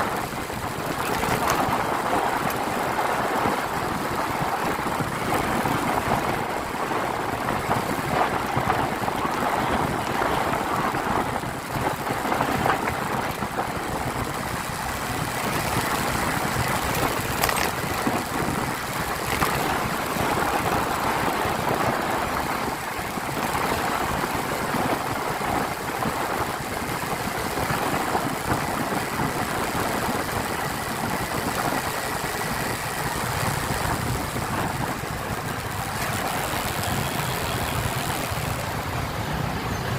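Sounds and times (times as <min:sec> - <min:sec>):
motorcycle engine: 0:00.0 - 0:08.7, 0:28.9 - 0:39.9
road noise: 0:00.0 - 0:39.9.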